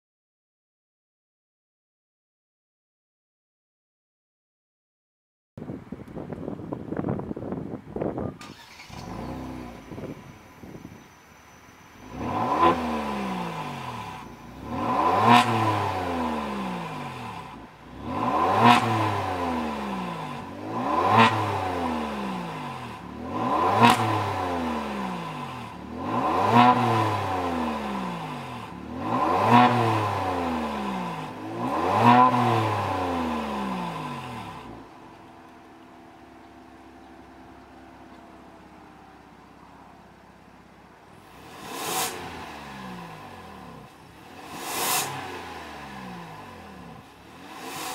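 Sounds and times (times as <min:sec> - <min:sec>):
car engine revving: 0:11.9 - 0:47.9.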